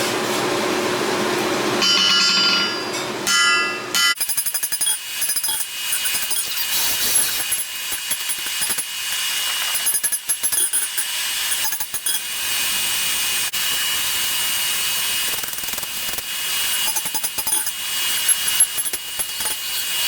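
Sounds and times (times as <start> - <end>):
hammer blows on anvil: 1.8 - 4.3.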